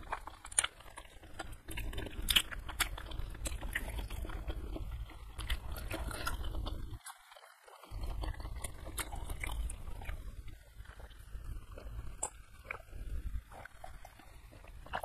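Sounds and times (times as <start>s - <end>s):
person chewing with mouth clicks: 0.0s - 15.0s
low hum: 7.9s - 15.0s.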